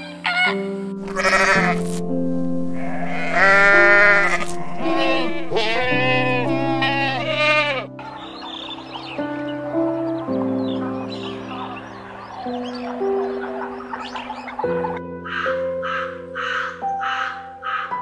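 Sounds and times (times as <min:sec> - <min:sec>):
relaxing background music: 0:00.0 - 0:18.0
goats bleating: 0:01.0 - 0:01.9, 0:02.8 - 0:07.9.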